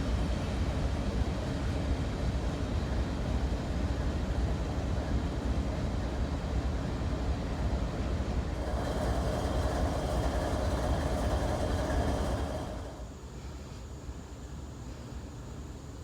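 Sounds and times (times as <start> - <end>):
freight train rumbling on rails: 0.0 - 13.7
wheel squeal: 8.6 - 13.1.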